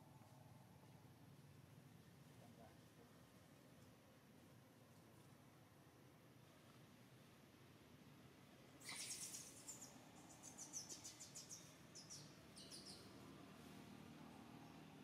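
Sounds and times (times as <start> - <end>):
bird chirping: 8.8 - 13.2.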